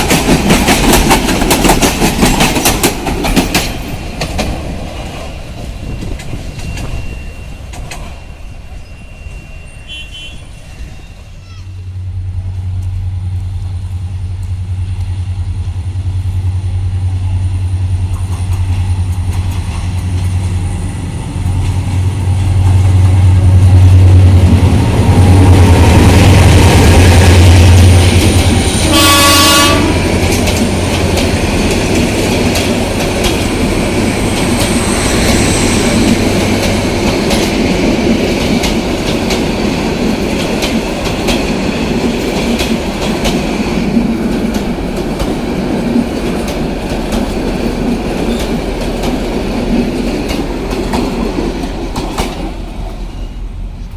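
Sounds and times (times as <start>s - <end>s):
train wheels clattering on rails: 0.0s - 10.9s, 13.7s - 53.9s
locomotive engine drone: 4.2s - 40.3s
train horn blast: 9.8s - 12.0s, 28.7s - 30.1s.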